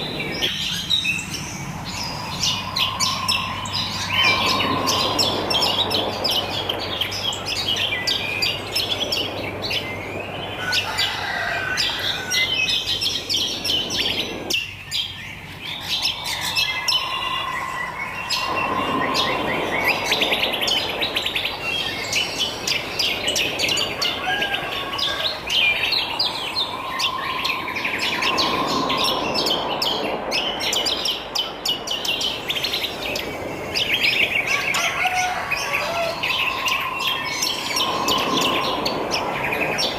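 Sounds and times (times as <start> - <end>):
birds chirping and singing: 0.0 - 39.9
hissing background: 36.1 - 39.9.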